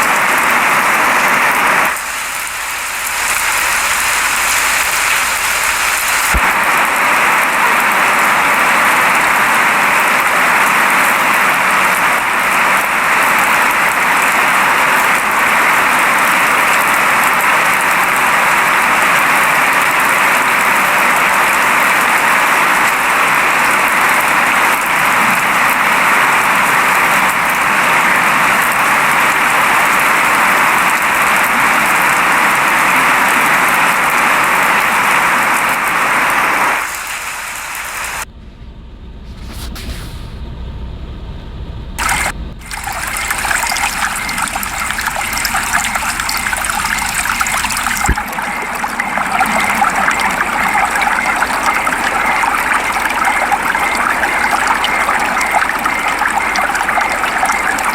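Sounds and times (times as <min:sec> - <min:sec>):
steady rain hiss: 0:00.0 - 0:38.2.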